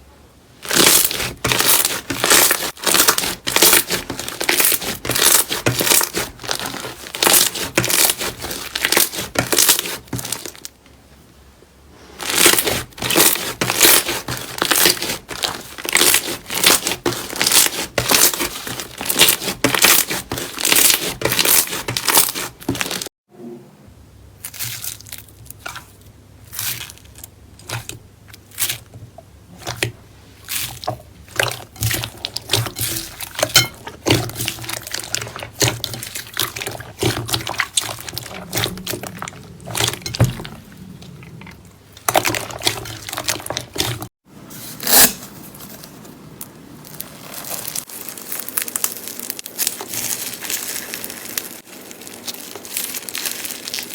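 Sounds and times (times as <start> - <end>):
slime crackling and popping: 0.6 - 10.7, 12.2 - 23.1, 29.6 - 40.5, 46.8 - 53.9.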